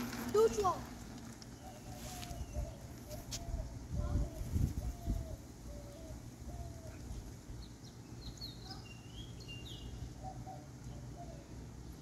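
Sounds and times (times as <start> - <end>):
low outdoor rumble: 0.0 - 12.0
birds chirping and whistling: 1.4 - 11.7.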